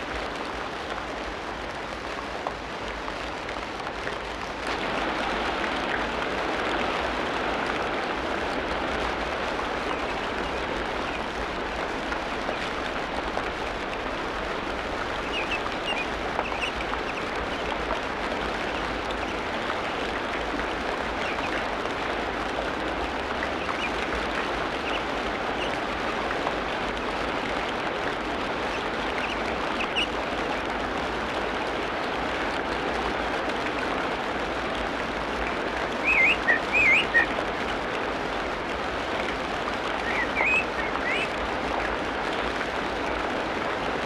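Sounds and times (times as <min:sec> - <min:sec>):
high bird chirps: 0:36.1 - 0:37.2.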